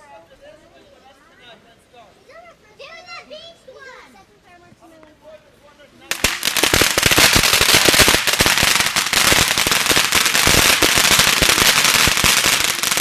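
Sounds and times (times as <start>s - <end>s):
fireworks cracking and popping: 6.0s - 13.0s.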